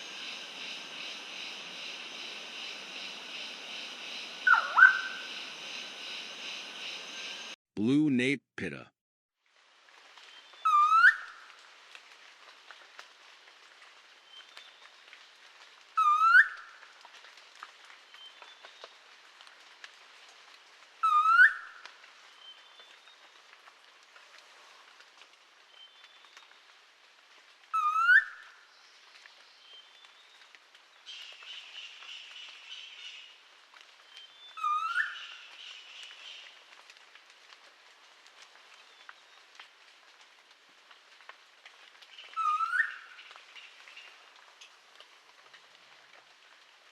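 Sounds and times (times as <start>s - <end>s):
field recording hiss: 0.0s - 8.8s, 28.6s - 36.7s
bird whistling calls: 4.4s - 5.4s, 34.6s - 35.4s, 42.4s - 43.0s.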